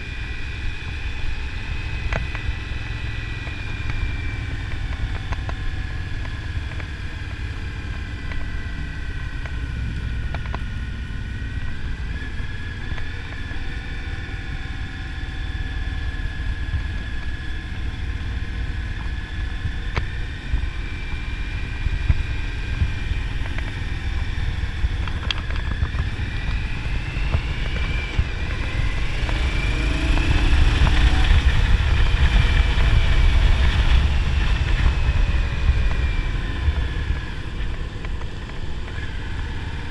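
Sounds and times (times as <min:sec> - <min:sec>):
motorcycle engine running: 0:00.0 - 0:39.9
wind buffeting microphone: 0:16.3 - 0:39.9.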